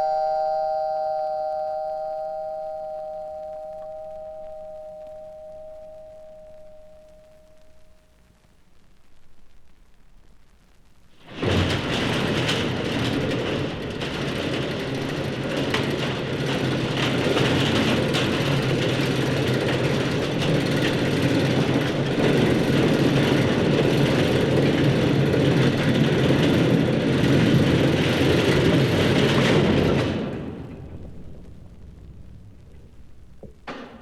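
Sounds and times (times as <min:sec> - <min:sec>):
mechanical rumble with rattling: 0:11.2 - 0:34.0.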